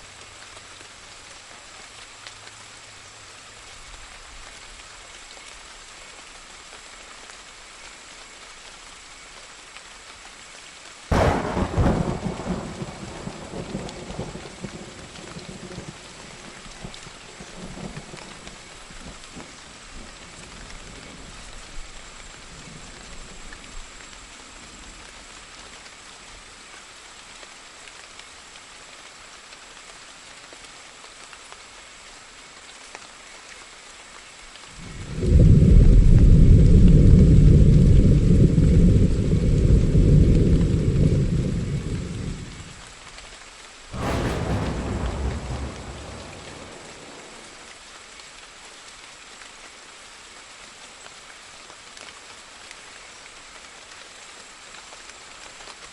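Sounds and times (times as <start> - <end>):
rain hiss: 0.0 - 55.9
sharp thunderclap: 11.1 - 18.6, 43.9 - 47.8
low thunder rumble: 11.1 - 23.4, 34.8 - 42.8, 43.9 - 47.8.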